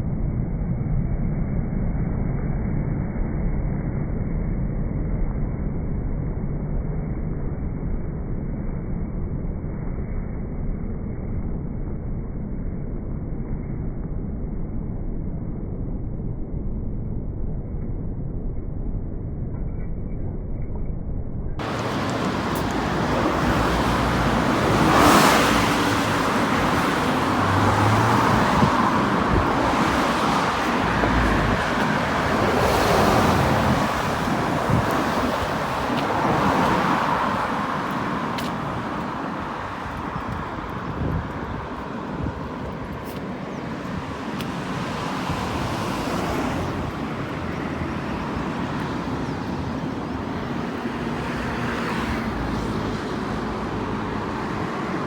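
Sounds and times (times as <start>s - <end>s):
cars passing: 21.6s - 55.0s.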